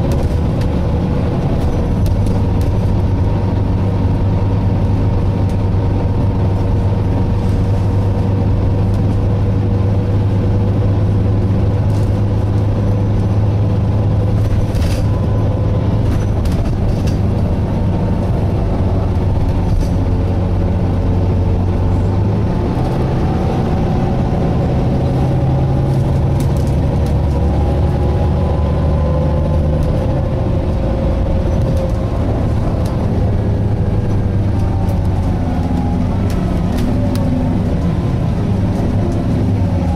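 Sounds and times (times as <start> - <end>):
bus engine drone with whine: 0.0 - 39.9.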